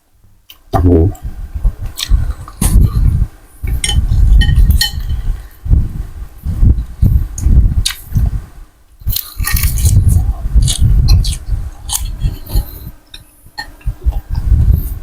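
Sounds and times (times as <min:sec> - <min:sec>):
spoon and chopsticks clinking on bowl: 0:03.8 - 0:05.2
chewing: 0:09.1 - 0:14.5.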